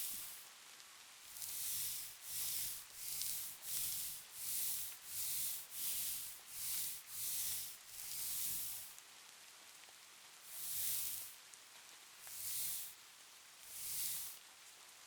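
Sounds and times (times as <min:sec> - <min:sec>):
soft rhythmic wiping: 0:00.0 - 0:00.4, 0:01.2 - 0:09.0, 0:10.4 - 0:11.5, 0:12.2 - 0:13.0, 0:13.6 - 0:14.5.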